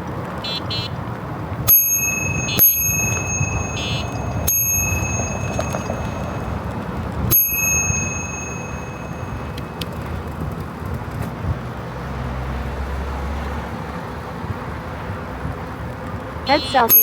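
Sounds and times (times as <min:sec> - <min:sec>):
road and wind noise: 0:00.0 - 0:17.0
low hum: 0:01.7 - 0:09.8
bicycle bell ringing: 0:01.7 - 0:10.5, 0:16.6 - 0:17.0.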